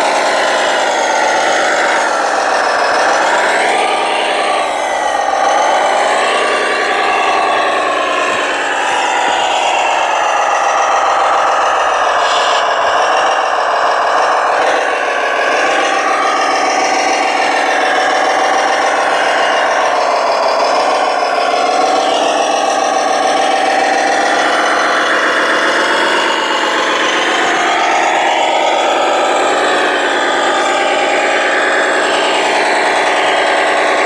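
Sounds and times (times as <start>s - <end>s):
model truck motor whine: 0.0s - 34.0s.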